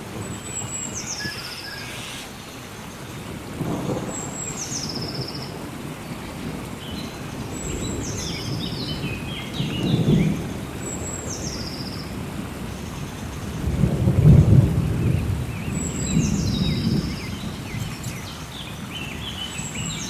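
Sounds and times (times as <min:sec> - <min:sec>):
steady rain: 0:00.0 - 0:20.0
lower bird chirping calls: 0:00.4 - 0:02.4, 0:06.8 - 0:12.2, 0:15.6 - 0:20.0
rolling thunder: 0:03.2 - 0:20.0.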